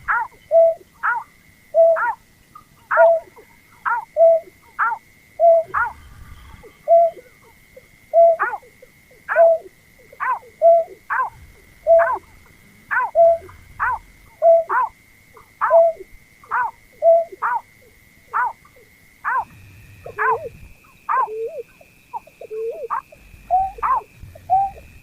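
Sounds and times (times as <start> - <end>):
faint high whine: 0.0 - 25.0
bird calling sharp notes: 9.3 - 17.7, 18.4 - 25.0.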